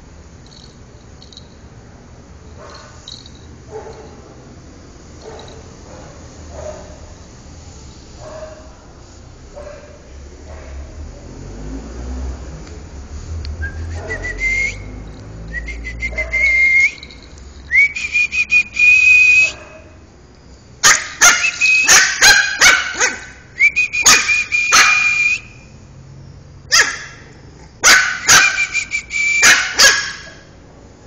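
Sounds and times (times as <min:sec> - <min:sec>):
puppy barking: 0:02.6 - 0:04.4, 0:05.2 - 0:07.1, 0:08.2 - 0:08.8, 0:09.5 - 0:10.9, 0:14.0 - 0:14.4, 0:16.1 - 0:16.6, 0:19.4 - 0:20.0, 0:20.8 - 0:25.2, 0:26.7 - 0:28.8, 0:29.4 - 0:30.5.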